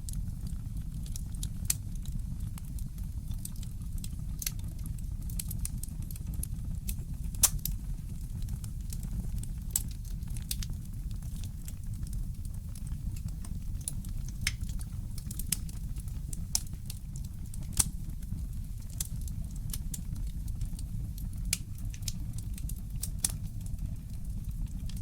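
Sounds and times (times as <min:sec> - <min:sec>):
fireplace crackling and popping: 0:00.0 - 0:25.0
steady low rumble: 0:06.1 - 0:22.0.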